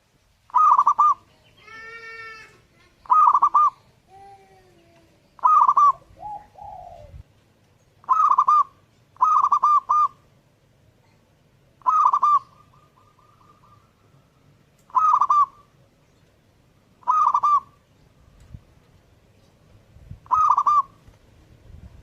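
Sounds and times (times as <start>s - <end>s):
dove cooing: 0.5s - 2.3s, 3.0s - 3.9s, 5.4s - 7.3s, 8.0s - 10.2s, 11.8s - 14.2s, 14.9s - 15.7s, 17.0s - 17.8s, 20.2s - 21.1s.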